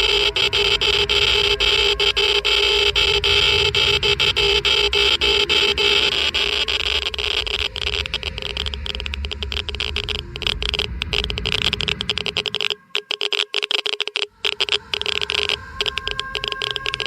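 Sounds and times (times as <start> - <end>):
low rumble and hiss: 0.0 - 12.7
geiger counter clicking: 0.0 - 17.0.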